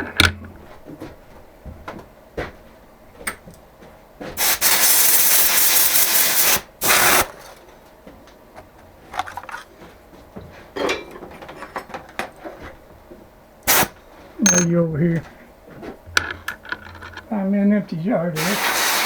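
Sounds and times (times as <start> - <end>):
tools clicking and clattering: 0.0 - 0.7, 9.1 - 9.8, 14.5 - 15.1, 16.0 - 17.4
loud pressurized hiss: 4.4 - 7.3, 13.7 - 14.0, 18.4 - 19.0.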